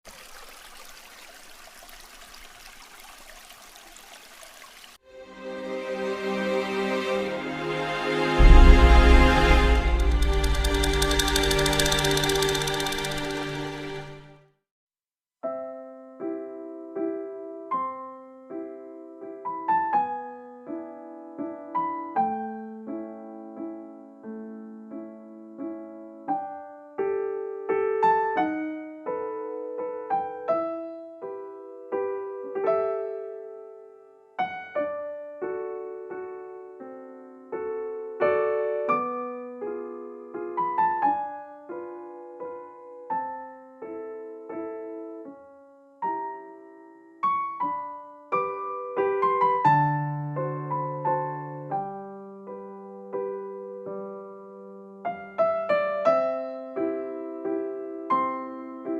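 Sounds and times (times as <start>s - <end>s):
slow solo piano music: 15.5s - 58.9s.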